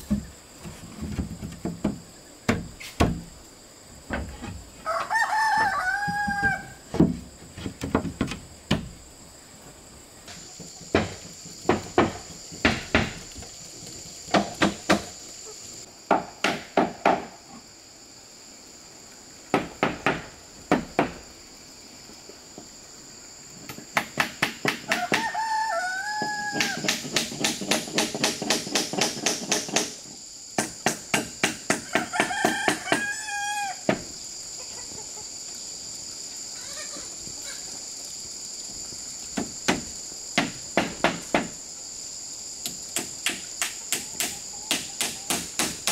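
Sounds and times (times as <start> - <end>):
high insect drone: 0.0 - 45.9
rooster crowing: 4.8 - 6.8, 24.9 - 26.8, 31.8 - 33.9.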